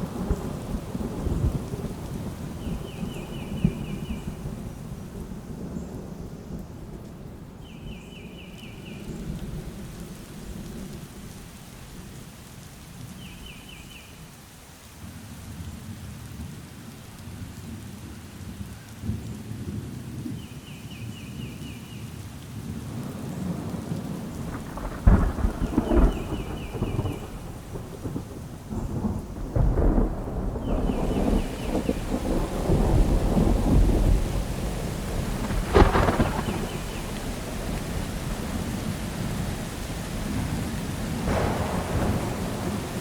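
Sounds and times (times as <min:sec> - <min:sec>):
thunder rumbling: 0:00.0 - 0:07.0, 0:22.8 - 0:43.0
rain: 0:00.0 - 0:43.0
sharp thunderclap: 0:24.4 - 0:39.4, 0:40.1 - 0:43.0.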